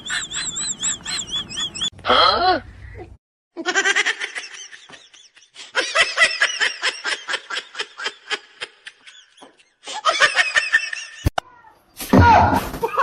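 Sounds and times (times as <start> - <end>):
high-pitched giggling laughter: 0.0 - 1.9, 3.6 - 11.3.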